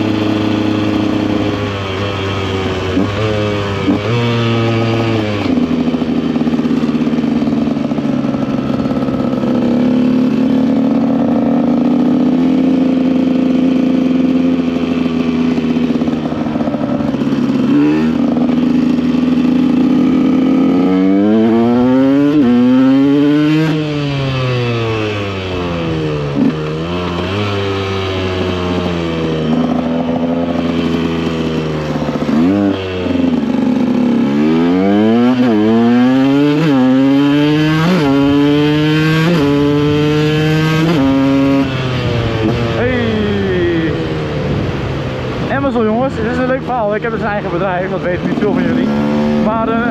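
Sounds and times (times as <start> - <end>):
two-stroke engine running: 0.0 - 49.9.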